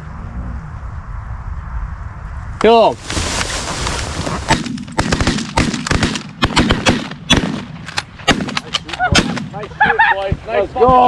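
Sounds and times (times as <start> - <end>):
shotguns firing volley: 4.4 - 9.8.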